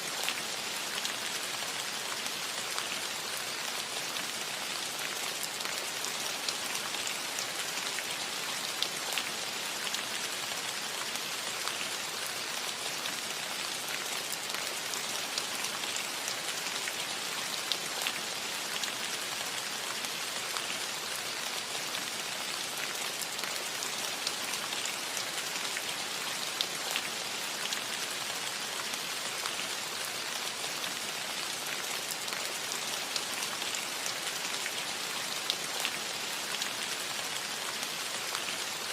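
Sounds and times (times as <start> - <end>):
rain on a roof: 0.0 - 38.9.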